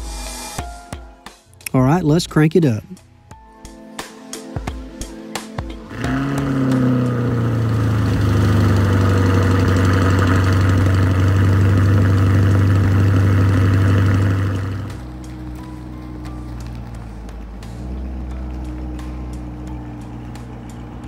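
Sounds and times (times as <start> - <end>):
car engine starting and idling: 5.3 - 21.0.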